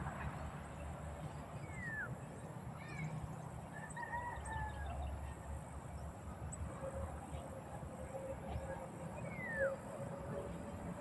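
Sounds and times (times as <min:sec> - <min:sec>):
faint high bird chirps: 0:01.6 - 0:05.2
rooster crowing: 0:03.7 - 0:05.0.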